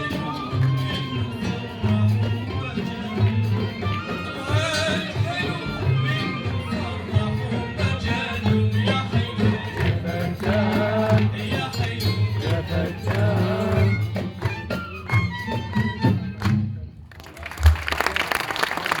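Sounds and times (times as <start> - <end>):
violin-like melody: 0.0 - 16.5
live band playing: 0.0 - 19.0
audience applauding: 16.4 - 19.0.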